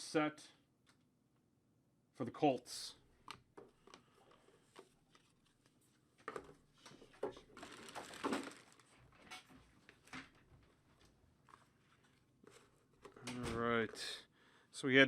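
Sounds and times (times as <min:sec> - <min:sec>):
cards and plastic holders rustling: 0:03.2 - 0:14.0.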